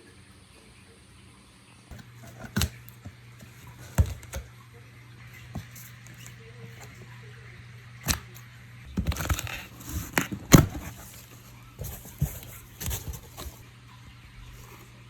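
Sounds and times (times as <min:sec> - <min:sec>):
handling knocks and clicks: 0:01.9 - 0:04.5, 0:08.0 - 0:13.7.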